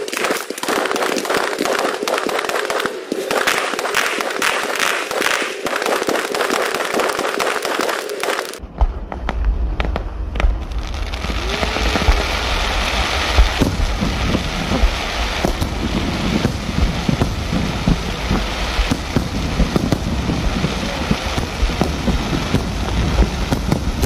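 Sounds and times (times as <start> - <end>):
fireworks crackling and hissing: 0.0 - 24.0
fireworks popping: 0.0 - 24.0
low rumble: 8.6 - 24.0.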